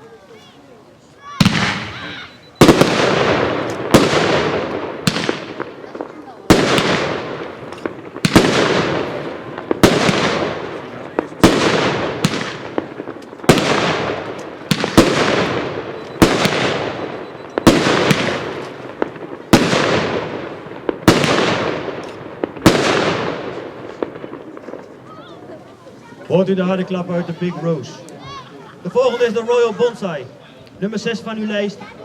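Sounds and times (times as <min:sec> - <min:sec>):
firework bangs with crackling: 0:01.4 - 0:25.6.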